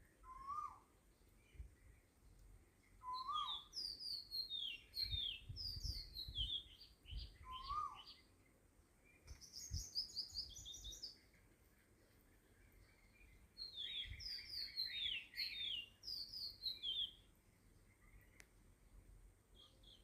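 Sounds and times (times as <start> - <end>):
birds chirping: 0.0 - 20.0
low rising and falling bird call: 0.1 - 0.9, 3.0 - 8.3, 12.8 - 17.3
bird trill: 0.2 - 0.8, 3.0 - 8.3, 12.8 - 17.3.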